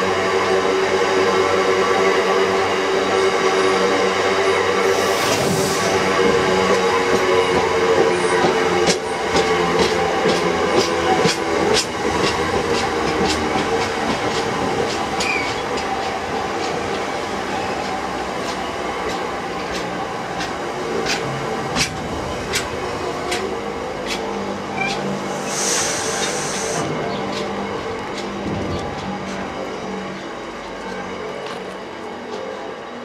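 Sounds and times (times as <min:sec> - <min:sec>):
train rumble: 0:04.7 - 0:33.0
train wheels clicking over rail joints: 0:06.2 - 0:29.8
brief hiss: 0:25.3 - 0:26.9.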